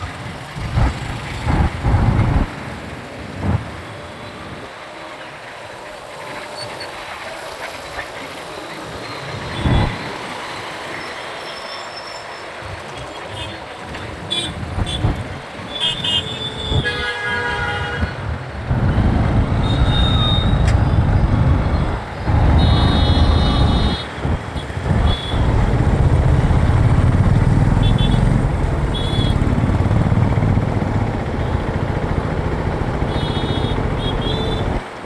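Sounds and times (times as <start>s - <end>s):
motorcycle engine and road noise: 0.0s - 11.3s, 12.6s - 17.0s, 17.9s - 35.0s
vehicle horn toots: 19.5s - 21.0s, 22.3s - 25.5s.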